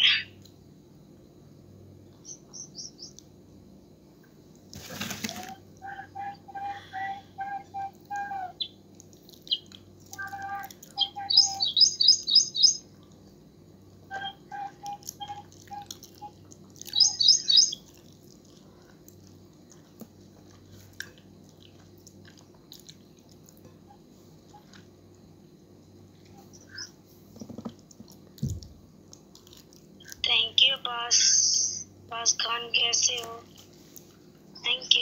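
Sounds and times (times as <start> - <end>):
bird chirping: 0.0 - 0.4, 2.1 - 3.2, 5.8 - 8.8, 9.4 - 12.9, 14.1 - 17.9, 26.4 - 27.0
steady low hum: 0.0 - 35.0
fast high twittering: 11.0 - 12.8, 16.9 - 17.8.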